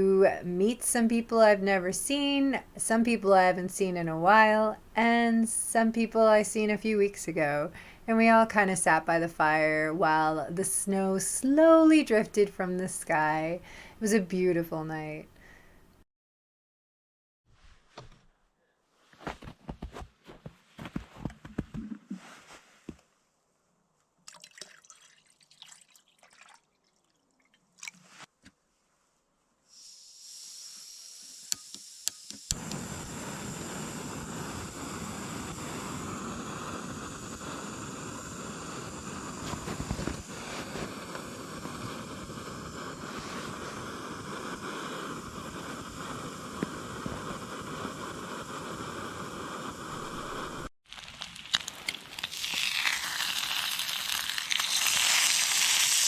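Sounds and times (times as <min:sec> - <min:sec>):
campfire hissing and popping: 0:29.8 - 0:56.0
faint clicks of campfire: 0:32.5 - 0:33.1.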